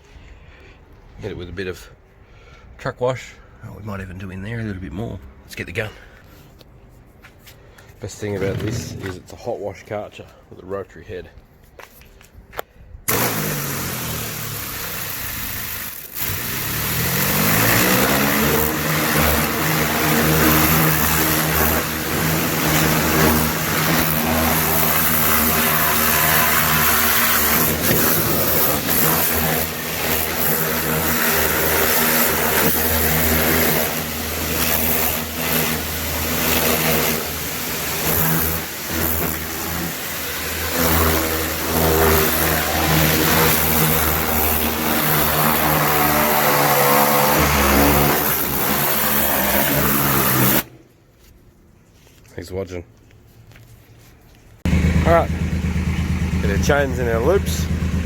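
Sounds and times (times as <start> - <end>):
pressure washer motor whine: 8.3 - 9.3, 13.1 - 50.7, 54.7 - 58.0.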